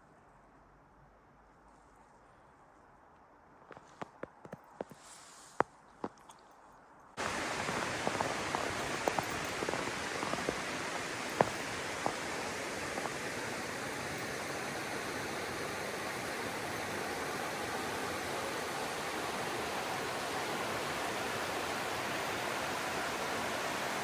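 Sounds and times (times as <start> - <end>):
flowing river water: 7.2 - 24.0.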